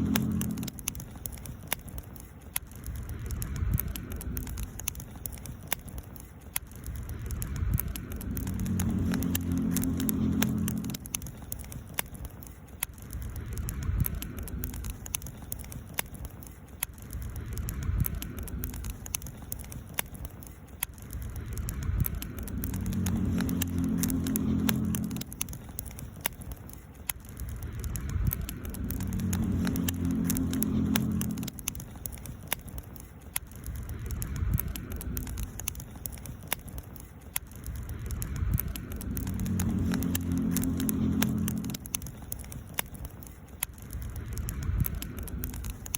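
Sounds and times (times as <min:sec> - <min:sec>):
low hum: 0:00.0 - 0:02.0, 0:06.7 - 0:12.4, 0:21.0 - 0:36.8, 0:37.5 - 0:45.9
campfire crackling and popping: 0:00.0 - 0:45.9.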